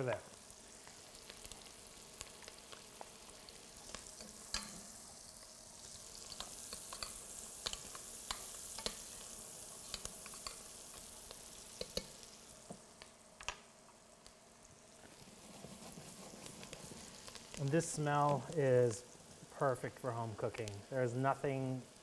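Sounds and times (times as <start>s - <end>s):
onions sizzling in fat: 0.0s - 22.0s
spoon stirring in pot: 3.5s - 4.9s, 6.2s - 9.2s, 11.8s - 12.3s.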